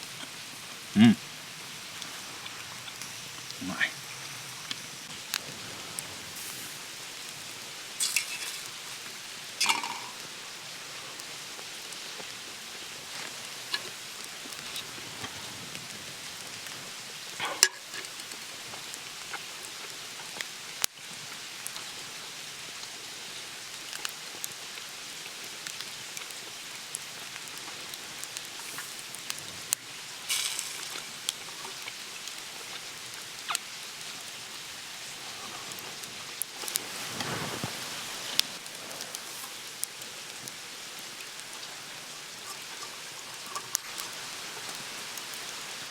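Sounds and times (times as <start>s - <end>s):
sizzling on hot griddle: 0.0s - 45.9s
pops and crackles: 2.0s - 3.6s, 8.0s - 10.3s, 25.7s - 33.7s, 35.3s - 45.6s.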